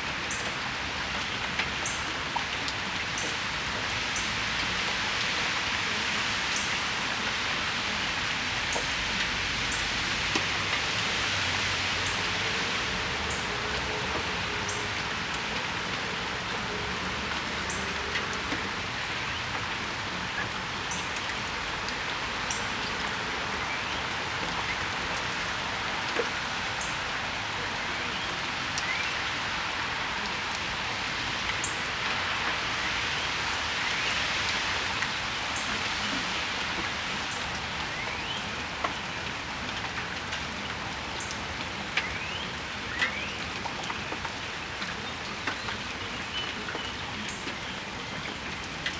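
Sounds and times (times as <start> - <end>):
rain shower hissing: 0.0 - 48.9
raindrops ticking close by: 0.0 - 48.9.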